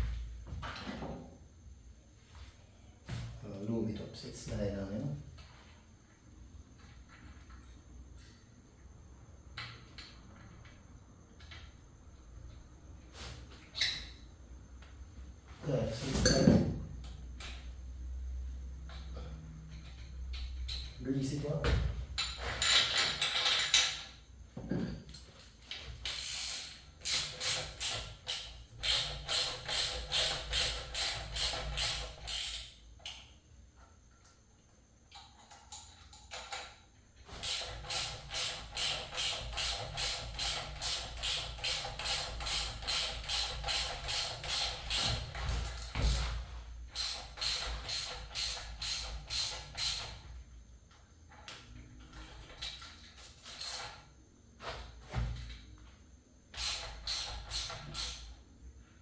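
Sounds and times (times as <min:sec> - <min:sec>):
ratchet wrench clicking: 0:26.0 - 0:33.3, 0:37.4 - 0:46.3, 0:46.9 - 0:50.2, 0:56.6 - 0:58.3.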